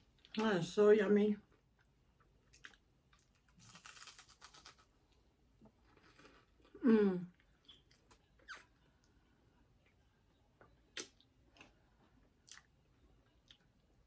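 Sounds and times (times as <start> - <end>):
crunchy eating: 2.5 - 5.0
person humming mmm: 6.8 - 7.4.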